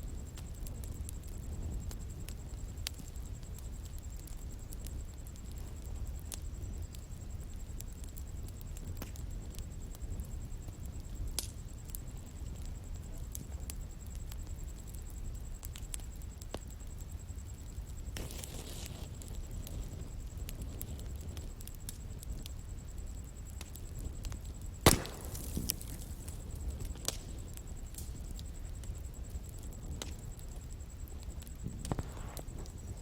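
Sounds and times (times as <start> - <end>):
bonfire rumble: 0.0 - 33.0
wood crackles: 0.0 - 33.0
loud sharp pop: 24.8 - 26.0.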